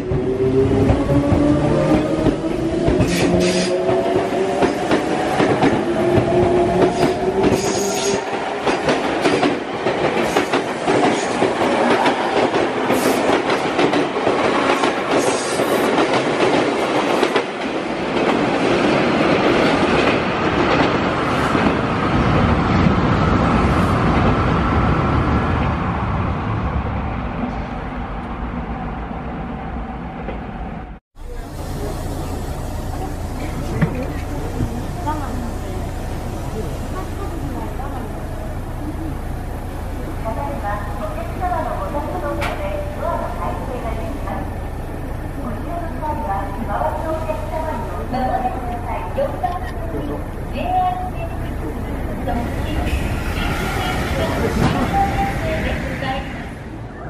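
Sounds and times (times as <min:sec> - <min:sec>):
train wheels clattering over rail joints: 0:00.8 - 0:18.6.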